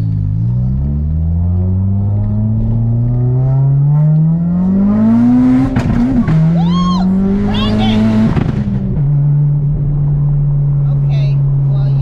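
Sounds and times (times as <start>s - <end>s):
turbo car engine accelerating: 0.0s - 12.0s.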